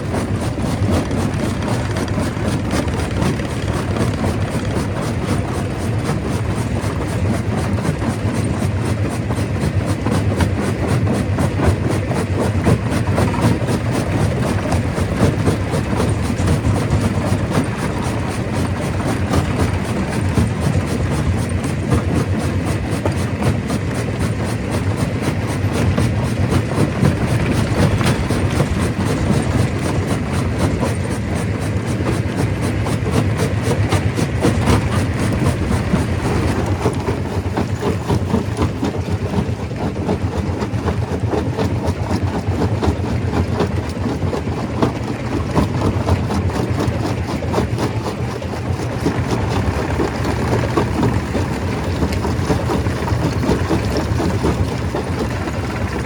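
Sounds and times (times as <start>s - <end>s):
stone crusher rumbling: 25.7s - 30.4s, 46.5s - 56.0s.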